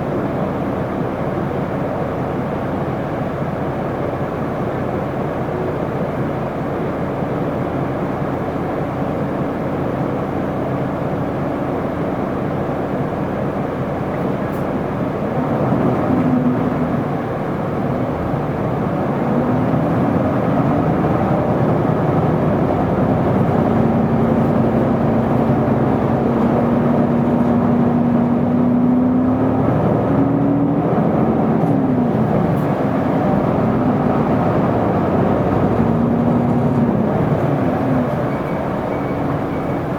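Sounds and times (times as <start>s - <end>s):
bus diesel engine rumble: 0.0s - 39.9s
engine and drivetrain whine: 0.0s - 39.9s
road noise: 10.9s - 39.9s.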